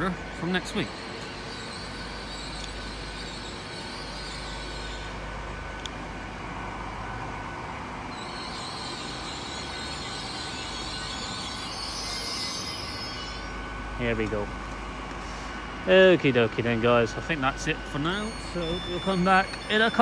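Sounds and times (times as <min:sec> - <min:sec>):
diesel engines running: 0:13.8 - 0:20.0
high hiss or whine: 0:15.2 - 0:20.0.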